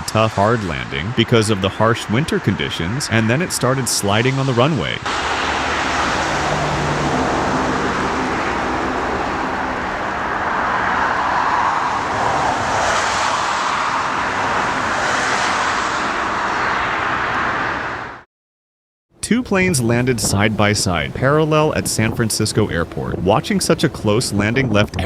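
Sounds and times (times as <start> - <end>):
jet engines roaring: 0.0 - 18.2.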